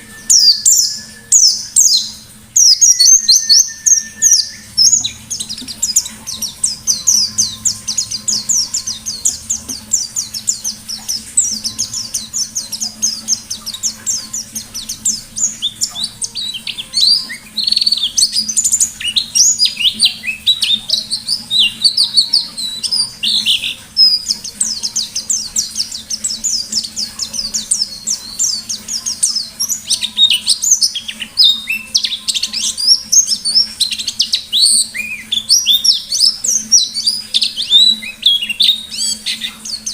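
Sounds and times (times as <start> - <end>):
bird singing rapid high chirps: 0.0 - 39.9.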